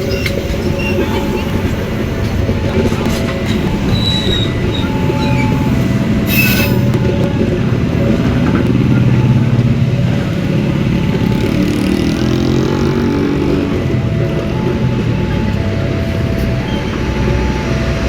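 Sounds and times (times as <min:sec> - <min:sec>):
rising train engine tone: 0:00.0 - 0:18.0
train rumbling past: 0:00.0 - 0:18.0
sharp train screech: 0:03.5 - 0:07.0.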